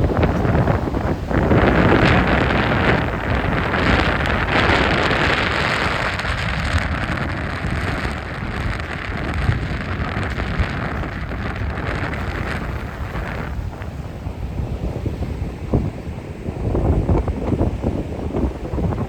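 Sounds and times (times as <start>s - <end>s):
heavy surf breaking: 0.0s - 19.0s
wind buffeting microphone: 0.0s - 19.0s.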